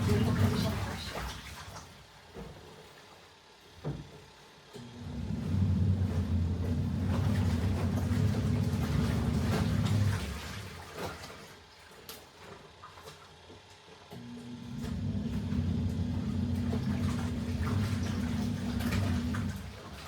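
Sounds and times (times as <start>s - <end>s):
water sloshing: 0.0s - 2.1s, 5.2s - 13.5s, 14.8s - 20.0s
washing machine motor humming: 0.0s - 20.0s.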